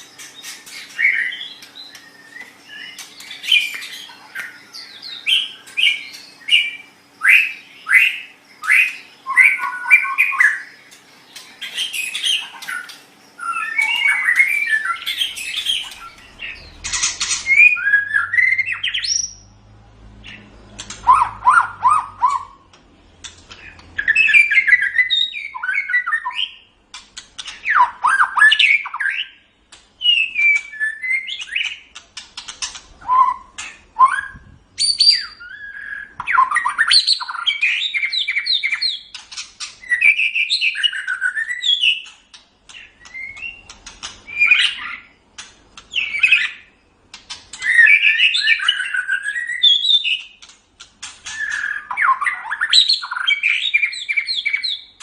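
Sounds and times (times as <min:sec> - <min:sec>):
bird singing whistles and chatter: 0:11.4 - 0:19.5, 0:30.0 - 0:31.9, 0:32.6 - 0:45.1, 0:47.5 - 0:50.4, 0:51.2 - 0:55.0.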